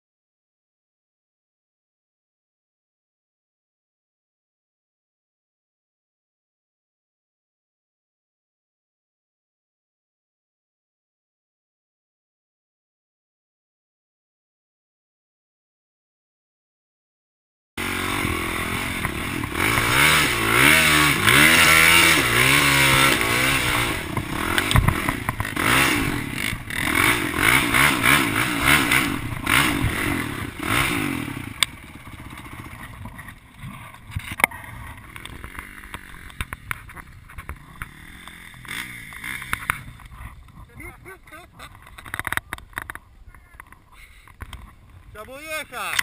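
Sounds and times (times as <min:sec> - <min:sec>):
dirt bike engine revving: 0:17.8 - 0:43.0
sharp clicks and knocks: 0:24.1 - 0:25.5, 0:41.6 - 0:46.0.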